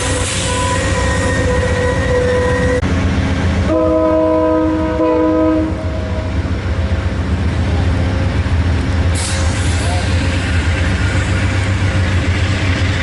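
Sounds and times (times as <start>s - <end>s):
locomotive air horn: 0.0s - 2.8s, 3.7s - 6.4s
locomotive engine running: 5.6s - 13.0s.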